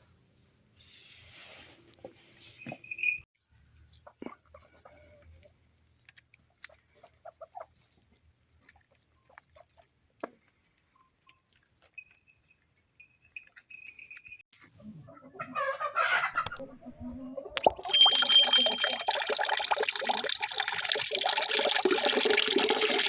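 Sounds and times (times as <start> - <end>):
chickens clucking softly: 6.5 - 10.0, 14.6 - 17.6
thin high steady note: 17.6 - 19.4.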